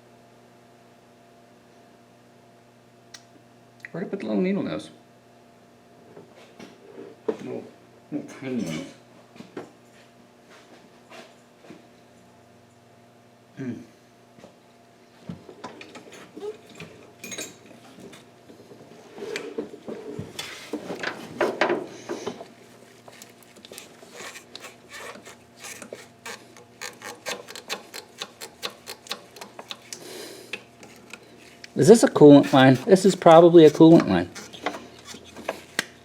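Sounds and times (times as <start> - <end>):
parts rubbing and rattling: 22.9 - 36.0.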